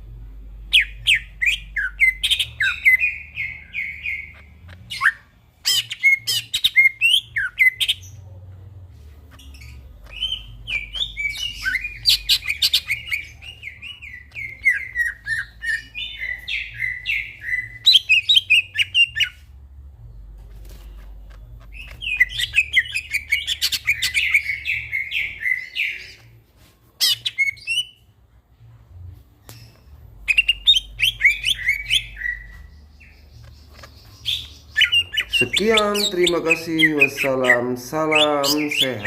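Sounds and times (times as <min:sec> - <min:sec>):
faint low hum: 0:00.0 - 0:37.7
bird singing chattering notes: 0:21.5 - 0:26.2, 0:30.2 - 0:39.0.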